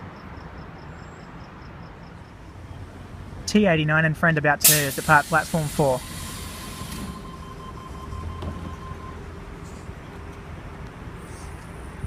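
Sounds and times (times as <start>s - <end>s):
electric train rumbling: 2.3s - 12.0s
thin high tone: 4.6s - 10.2s.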